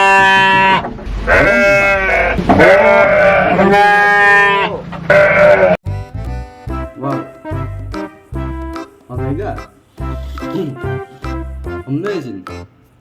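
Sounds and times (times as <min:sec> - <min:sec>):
farm animal bleating: 0:01.3 - 0:05.8.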